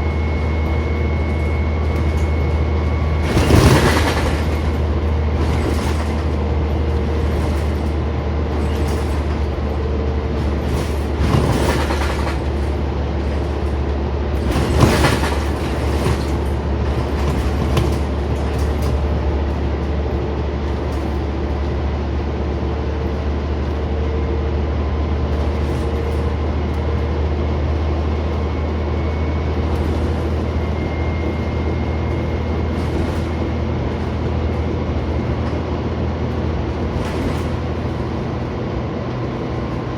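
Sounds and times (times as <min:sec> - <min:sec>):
bus body rattles: 0:00.0 - 0:39.9
bus engine and road drone: 0:00.0 - 0:39.9.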